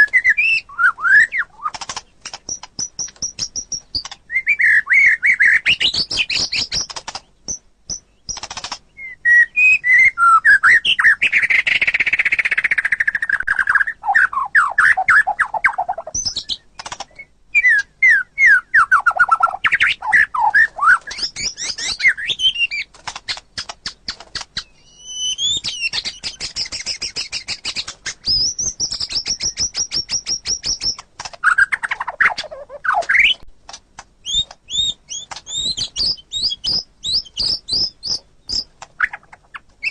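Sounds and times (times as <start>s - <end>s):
held high bird whistle: 0.0s - 1.8s, 24.8s - 30.9s
bird singing trills: 0.0s - 33.4s, 34.2s - 39.9s.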